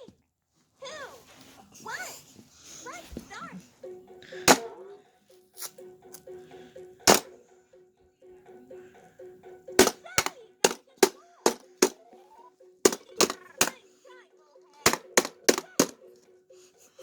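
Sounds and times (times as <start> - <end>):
mallet hitting toy moles: 4.5 - 4.8, 7.1 - 7.3, 9.8 - 12.0, 12.9 - 13.8, 14.8 - 16.1.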